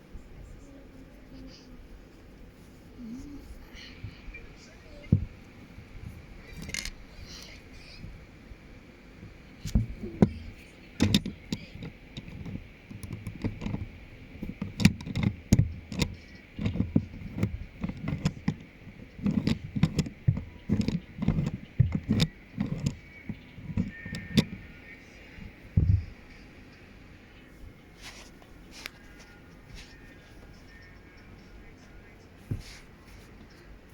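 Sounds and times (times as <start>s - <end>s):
plastic bricks clicking and rattling: 5.1s - 8.2s, 9.2s - 26.2s.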